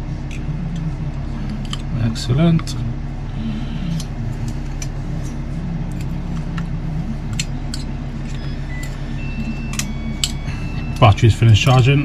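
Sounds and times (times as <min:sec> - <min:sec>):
steady low hum: 0:00.0 - 0:12.0
charger beeps: 0:08.3 - 0:12.0.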